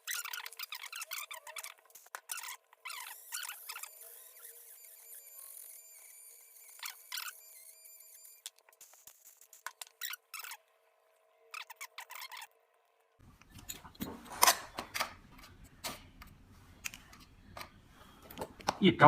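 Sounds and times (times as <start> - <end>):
tool scraping squeakily: 0.0 - 10.6, 11.6 - 12.5.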